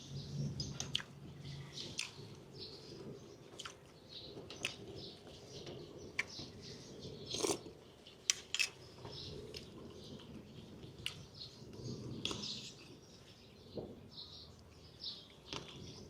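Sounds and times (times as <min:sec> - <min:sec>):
person chewing food: 0:00.8 - 0:01.1, 0:03.5 - 0:03.9, 0:07.3 - 0:08.8.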